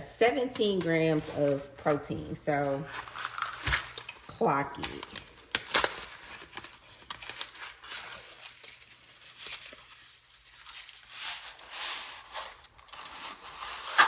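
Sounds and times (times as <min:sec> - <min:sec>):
packaging tearing and crinkling: 0:02.8 - 0:14.0.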